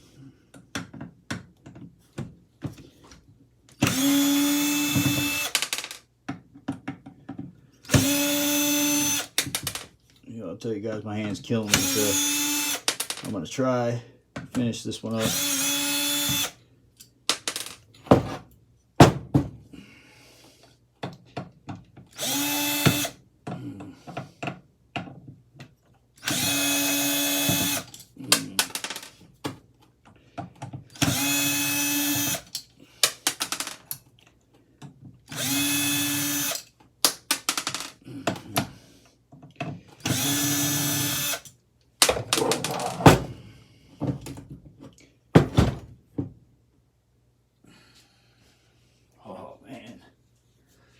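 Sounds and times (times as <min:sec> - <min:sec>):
power drill whining: 0:03.8 - 0:05.6, 0:07.9 - 0:09.4, 0:11.7 - 0:13.0, 0:15.2 - 0:16.6, 0:22.2 - 0:23.2, 0:26.2 - 0:28.0, 0:31.0 - 0:32.6, 0:35.3 - 0:36.7, 0:40.0 - 0:41.5.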